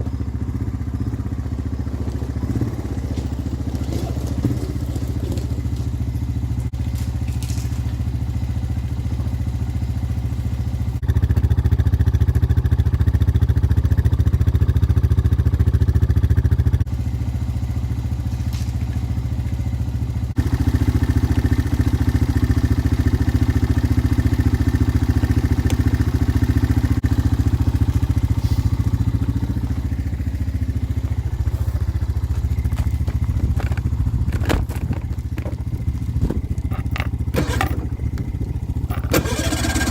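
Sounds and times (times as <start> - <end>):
motor-driven machine running: 36.1 - 39.9.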